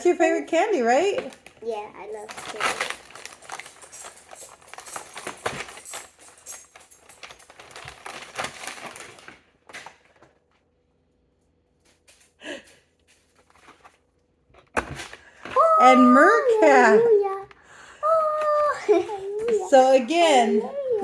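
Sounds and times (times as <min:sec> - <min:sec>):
gift packaging crinkling: 0:01.2 - 0:10.2, 0:15.6 - 0:17.3, 0:18.0 - 0:21.0.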